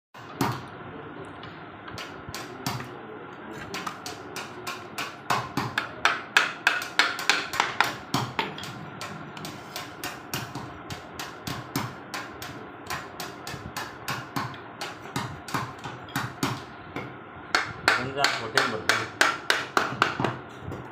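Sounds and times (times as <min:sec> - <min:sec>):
hammer knocking on wood: 0:04.7 - 0:08.7, 0:12.9 - 0:20.4.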